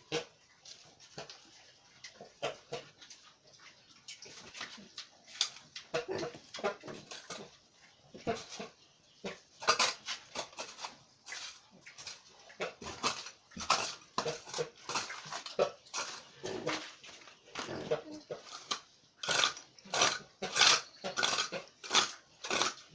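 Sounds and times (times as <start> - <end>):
pigs grunting and squealing: 5.9 - 7.5, 12.0 - 16.9, 17.6 - 22.8.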